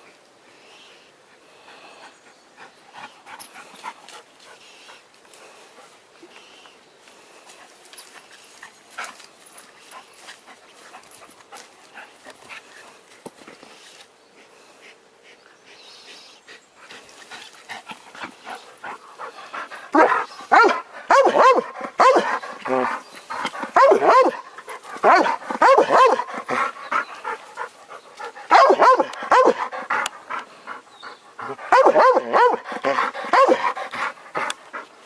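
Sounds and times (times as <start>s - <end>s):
dog whining and yelping: 31.8s - 33.7s.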